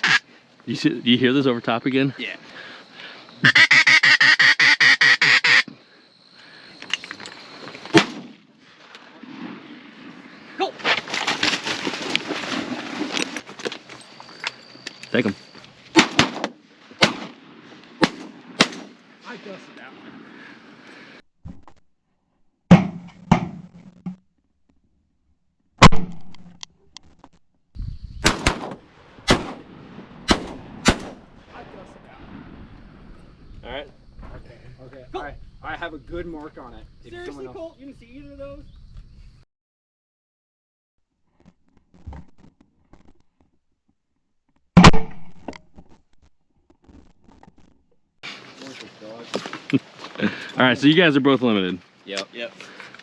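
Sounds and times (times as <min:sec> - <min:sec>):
duck call quacks: 0:00.0 - 0:00.2, 0:03.4 - 0:05.7
sharp crack: 0:07.8 - 0:10.0, 0:15.9 - 0:19.9, 0:22.7 - 0:24.2, 0:25.8 - 0:27.3, 0:28.2 - 0:32.5, 0:44.7 - 0:45.7
shotgun shots with echo: 0:07.9 - 0:08.4, 0:16.0 - 0:17.4, 0:18.0 - 0:19.0, 0:28.2 - 0:31.3.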